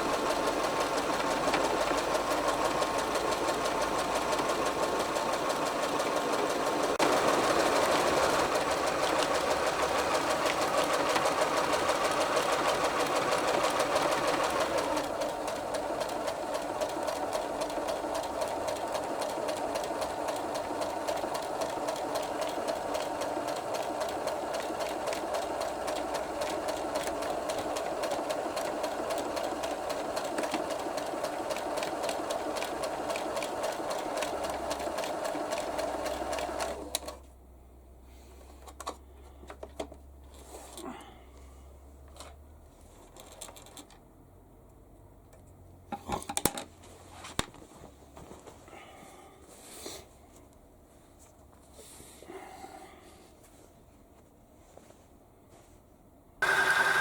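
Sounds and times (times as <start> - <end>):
sewing machine stitching: 0.0 - 37.2, 56.4 - 57.0.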